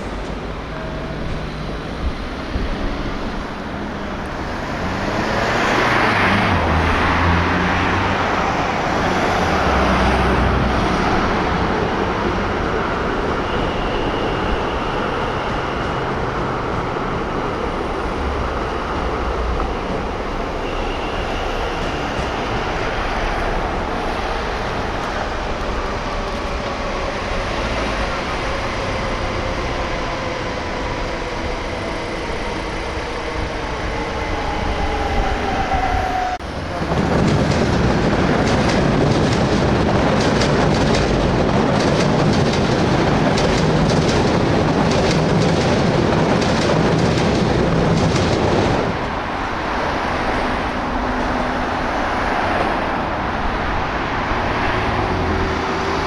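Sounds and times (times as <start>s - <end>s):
electric train whine: 0.0s - 56.0s
train wheels clicking over rail joints: 36.7s - 49.0s.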